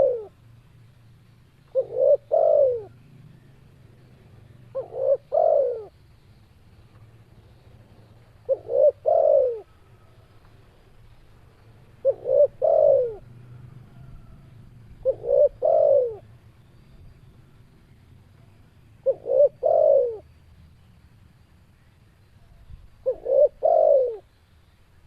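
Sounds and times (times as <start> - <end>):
dove cooing: 0.0 - 0.4, 1.7 - 3.3, 4.3 - 6.0, 8.3 - 10.3, 11.8 - 16.3, 18.4 - 20.3, 22.4 - 24.3.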